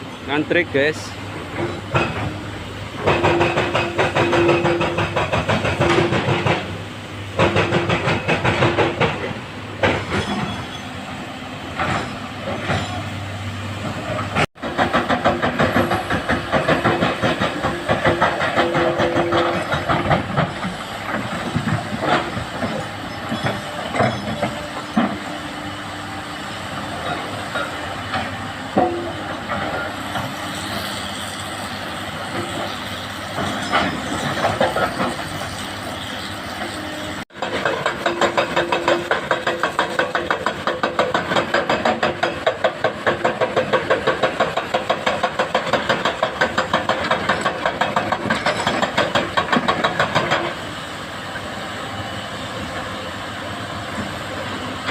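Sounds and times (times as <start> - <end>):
excavator diesel engines and hydraulics: 0.0 - 54.9
rock clanking on metal truck bed: 1.5 - 2.4, 3.0 - 10.9, 13.8 - 25.3, 27.0 - 30.3, 37.3 - 50.6.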